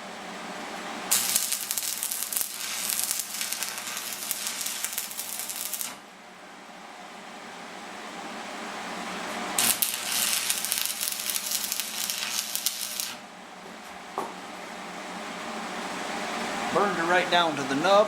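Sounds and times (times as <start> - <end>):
welding arc crackling sizzle: 0.8 - 6.1, 9.3 - 13.2.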